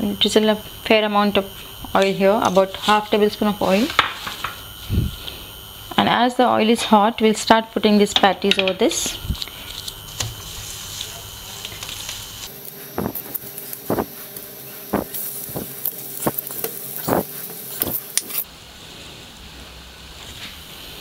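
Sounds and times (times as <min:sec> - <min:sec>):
oil sizzling: 0:09.4 - 0:18.4.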